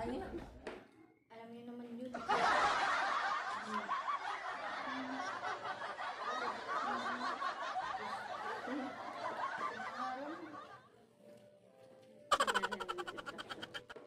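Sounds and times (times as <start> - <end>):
people laughing and giggling: 2.2 - 11.4, 12.3 - 14.0.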